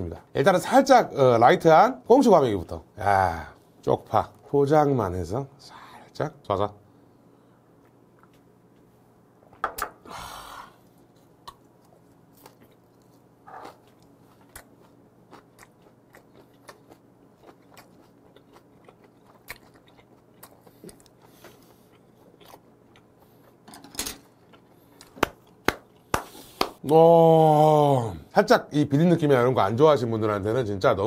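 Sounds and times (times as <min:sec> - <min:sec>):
close chewing with mouth clicks: 0:11.4 - 0:23.6.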